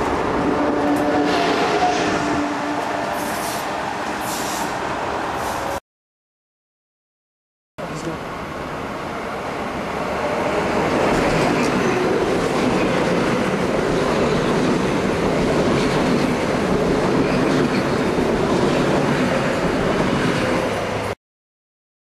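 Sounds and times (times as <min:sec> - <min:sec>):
train wheels rushing on rail: 0:09.4 - 0:21.2.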